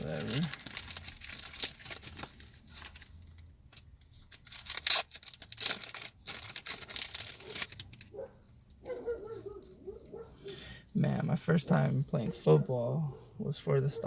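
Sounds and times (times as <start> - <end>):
packaging ripping: 0.0 - 3.4, 4.2 - 8.9
packaging crinkling and rustling: 0.0 - 10.2.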